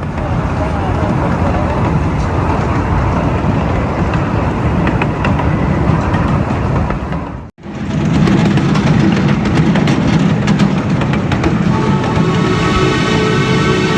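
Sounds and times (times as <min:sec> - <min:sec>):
steam train rumble with hiss: 0:00.0 - 0:13.9.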